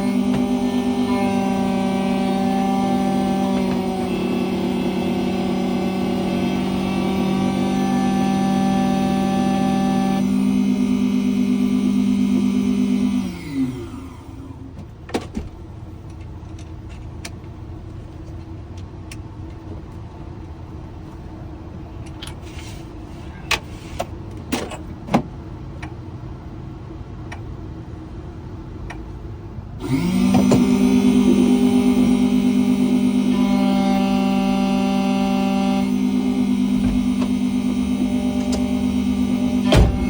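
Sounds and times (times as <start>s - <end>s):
electric motor humming: 0.0s - 14.6s, 29.8s - 40.0s.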